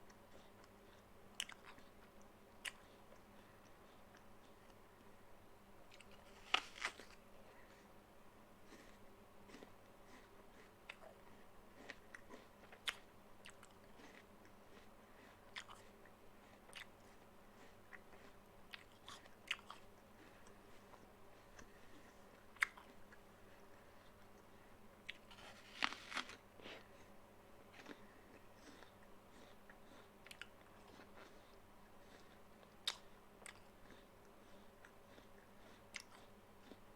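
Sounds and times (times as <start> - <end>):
crisp apple chewing crunches: 5.9 - 7.2, 8.7 - 15.9, 16.6 - 23.2, 25.0 - 26.8, 27.7 - 36.8.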